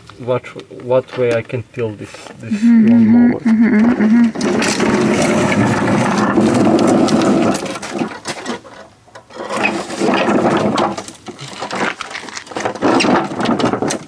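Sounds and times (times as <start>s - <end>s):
metal clattering and rattling: 4.3s - 14.0s.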